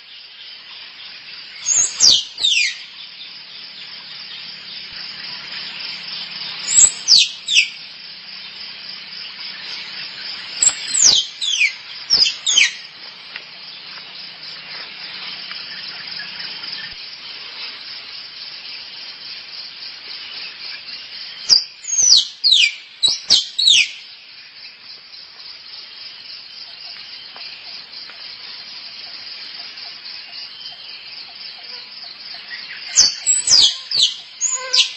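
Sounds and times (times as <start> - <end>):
squirrel chirping calls: 1.6 - 3.0, 6.6 - 7.8, 9.7 - 12.8, 21.5 - 24.0, 32.4 - 34.9.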